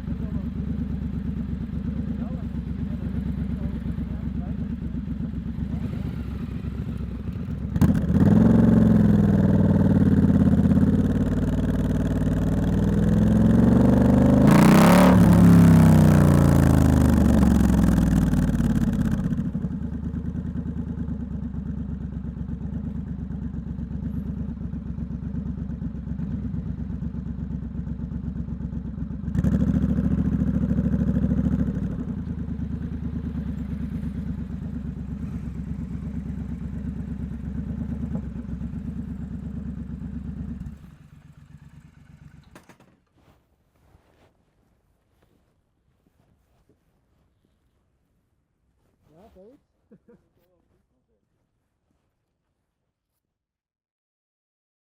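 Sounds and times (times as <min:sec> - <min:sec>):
motorcycle engine idling: 0:00.0 - 0:43.1
motorcycle engine revving: 0:00.0 - 0:43.4.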